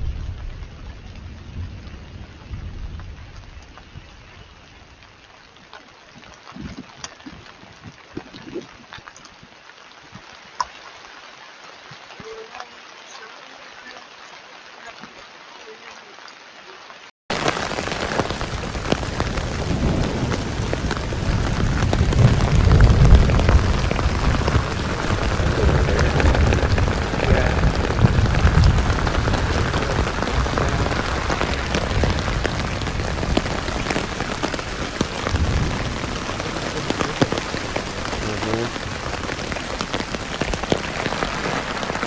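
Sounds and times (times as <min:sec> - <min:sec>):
thunder rumbling: 0:00.0 - 0:04.9, 0:17.3 - 0:42.0
heavy rain falling: 0:00.0 - 0:42.0.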